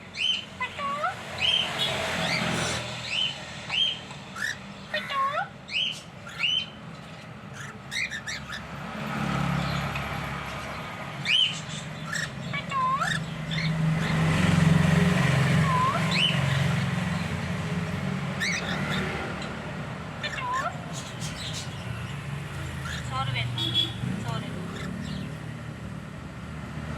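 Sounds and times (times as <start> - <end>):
cockatiels whistling: 3.1 - 4.6, 5.7 - 6.8, 7.5 - 8.6, 11.2 - 14.2, 15.6 - 16.6, 18.4 - 19.0.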